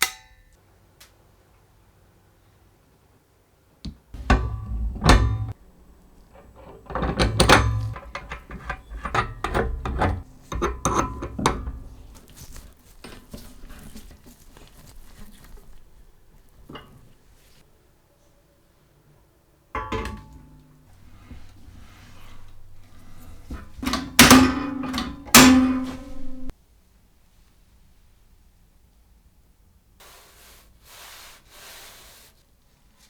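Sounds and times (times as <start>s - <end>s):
hard parts knocking and clattering: 4.2s - 12.3s, 19.8s - 26.5s.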